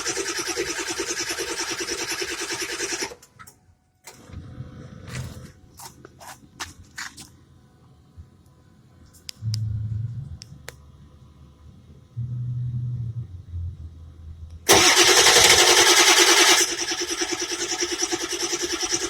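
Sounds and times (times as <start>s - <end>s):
starter clicks and hums: 14.7s - 19.0s.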